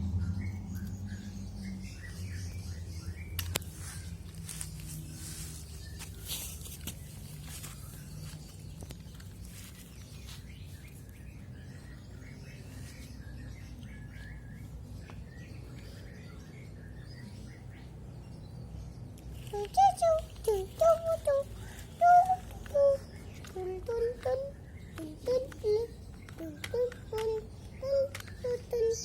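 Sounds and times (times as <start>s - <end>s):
faint bird-like chirps: 19.3s - 29.0s.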